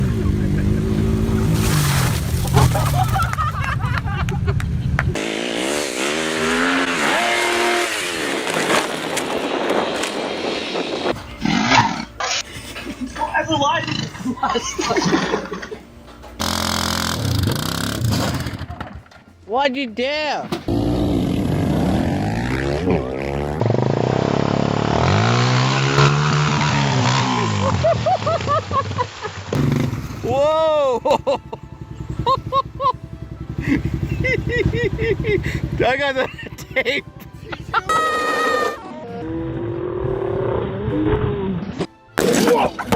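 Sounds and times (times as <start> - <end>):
motorcycle engine revving: 0.0 - 3.1, 5.0 - 12.1, 16.4 - 19.0, 20.7 - 28.2, 29.5 - 30.5, 31.2 - 38.5, 39.1 - 41.9
road and wind noise: 0.0 - 14.4, 20.5 - 30.4, 31.2 - 42.2.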